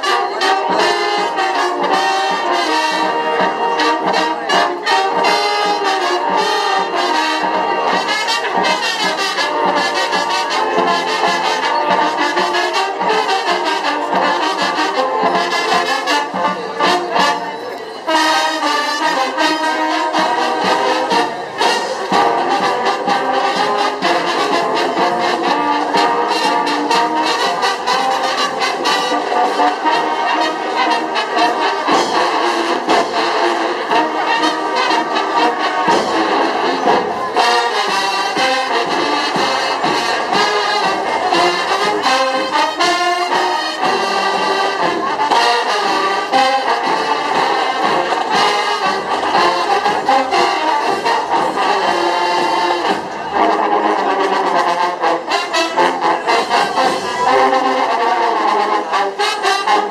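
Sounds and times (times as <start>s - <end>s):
trumpets and trombones: 0.0s - 59.9s.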